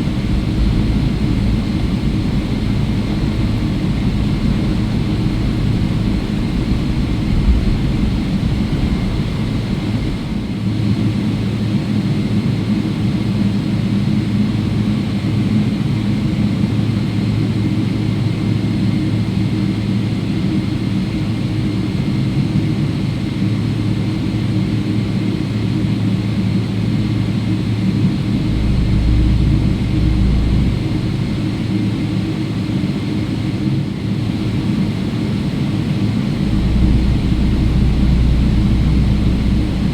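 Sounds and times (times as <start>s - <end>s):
deep rumble: 0.0s - 10.7s, 27.0s - 33.6s, 35.0s - 39.9s
jet engines idling in cabin: 0.0s - 39.9s.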